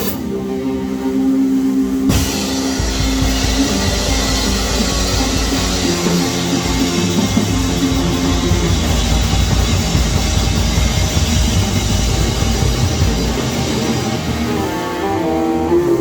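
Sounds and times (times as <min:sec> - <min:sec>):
loud rock music: 0:02.1 - 0:16.0.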